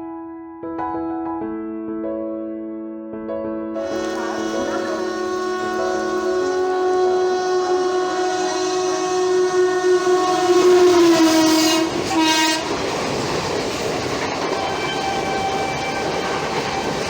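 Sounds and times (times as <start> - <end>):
locomotive air horn blast: 3.8 - 12.9, 14.5 - 17.0
train coaches clattering past: 3.8 - 17.0.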